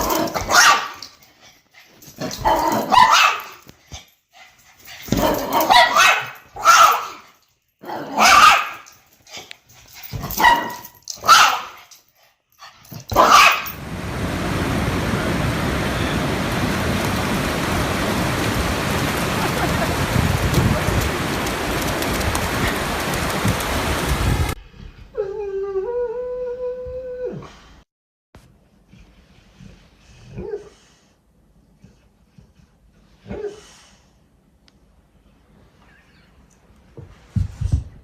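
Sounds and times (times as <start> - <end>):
dog barking: 0.0 - 1.0, 2.4 - 3.6, 5.2 - 7.2, 8.0 - 8.9, 10.3 - 11.8, 13.1 - 13.8
steady hiss like rain: 13.5 - 24.6.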